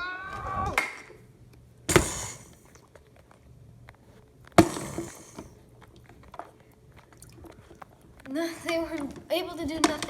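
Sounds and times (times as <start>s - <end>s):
sharp knocks or crashes: 1.9s - 2.5s, 4.6s - 5.5s.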